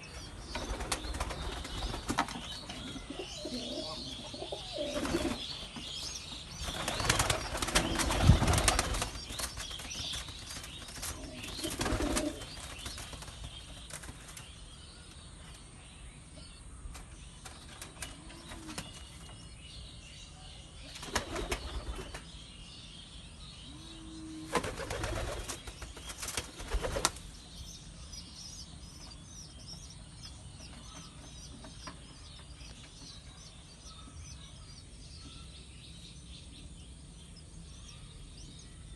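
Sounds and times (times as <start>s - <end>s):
pigeon wings flapping: 6.7s - 14.4s.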